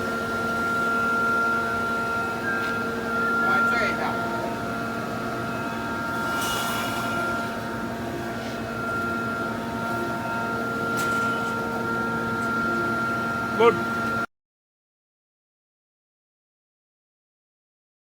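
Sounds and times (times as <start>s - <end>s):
welding machine electrical hum: 0.0s - 14.3s.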